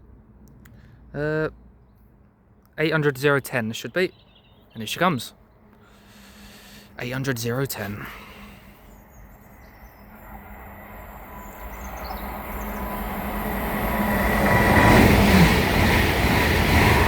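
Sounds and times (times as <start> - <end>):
train passing at speed: 8.1 - 17.0.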